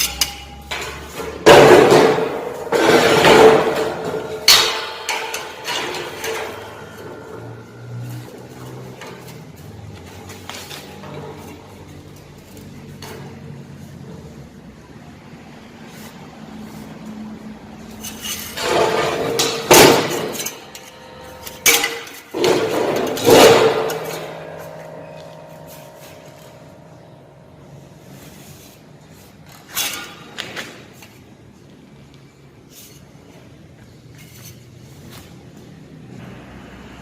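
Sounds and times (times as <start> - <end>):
steel pieces clanking: 0.0 - 9.6, 17.9 - 27.5.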